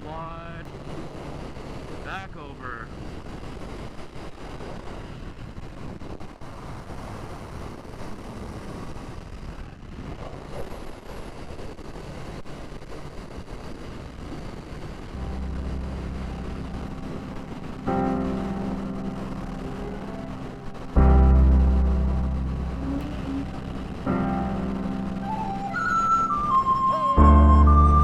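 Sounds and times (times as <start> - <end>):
steady rush of noise: 0.0 - 28.0
deep steady hum: 15.1 - 28.0.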